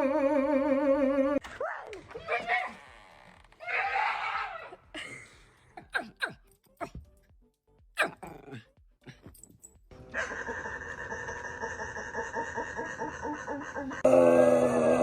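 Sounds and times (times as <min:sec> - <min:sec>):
dog yelping: 0:10.2 - 0:12.4.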